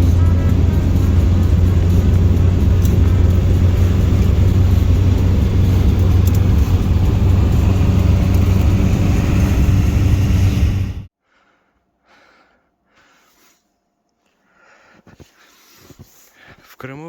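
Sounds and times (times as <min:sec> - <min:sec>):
car engine: 0:00.0 - 0:11.1
road rumble: 0:00.0 - 0:11.1.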